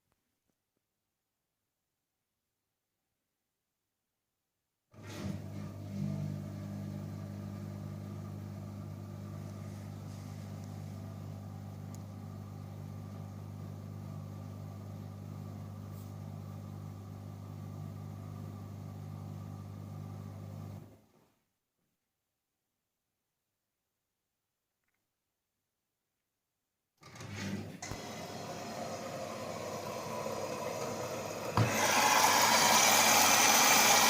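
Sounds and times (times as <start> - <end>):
washing machine pump humming: 5.0 - 20.8, 27.8 - 34.0.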